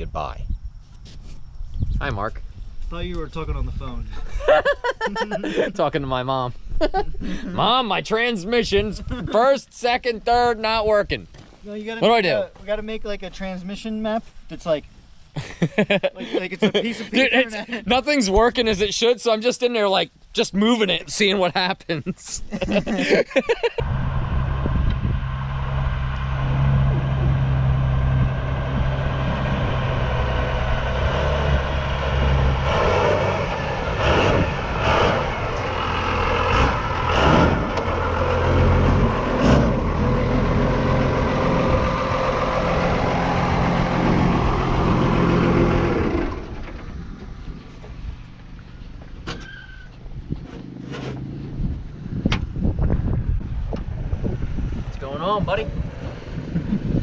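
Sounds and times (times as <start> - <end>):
truck diesel engine under load: 23.8 - 54.8.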